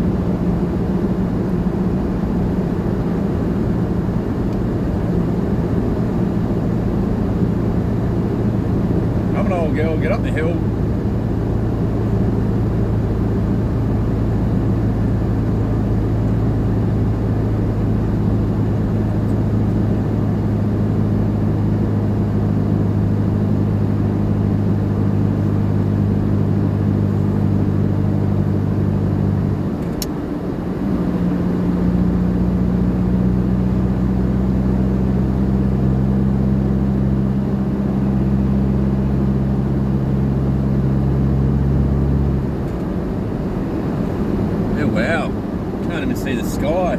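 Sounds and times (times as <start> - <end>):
engine droning under load: 0.0 - 46.9
road noise: 0.0 - 46.9
click: 29.8 - 30.2.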